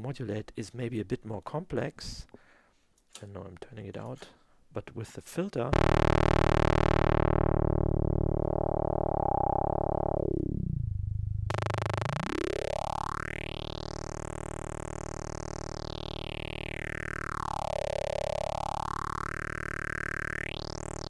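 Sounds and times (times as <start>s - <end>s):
buzzy synthesizer tone sweeping: 5.7s - 21.0s.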